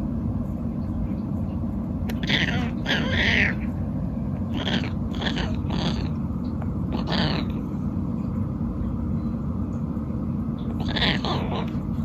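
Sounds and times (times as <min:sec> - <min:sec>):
steady low rumble: 0:00.0 - 0:12.0
cat squeaky calls: 0:02.1 - 0:03.6.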